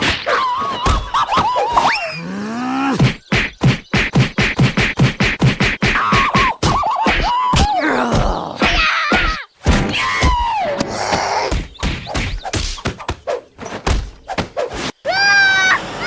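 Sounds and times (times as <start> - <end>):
rapid thuds and knocks: 2.9 - 10.9, 11.5 - 14.9.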